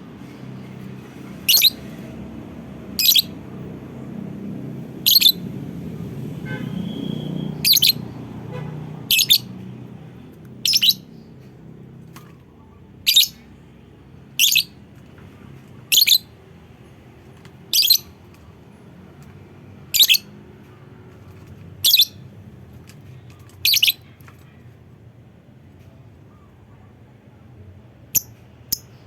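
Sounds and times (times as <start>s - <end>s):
lovebird shrill calls: 1.5s - 1.8s, 3.0s - 3.4s, 5.0s - 5.4s, 7.1s - 8.0s, 9.1s - 9.5s, 10.6s - 11.1s, 13.0s - 13.4s, 14.4s - 14.7s, 15.9s - 16.3s, 17.7s - 18.1s, 19.9s - 20.3s, 21.8s - 22.2s, 23.6s - 24.0s.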